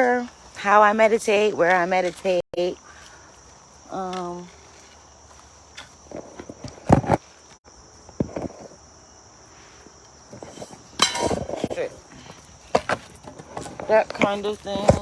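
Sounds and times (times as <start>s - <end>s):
scraping: 0.0s - 8.8s, 9.7s - 15.0s
crickets chirring: 0.0s - 15.0s
footsteps outdoors: 0.0s - 15.0s.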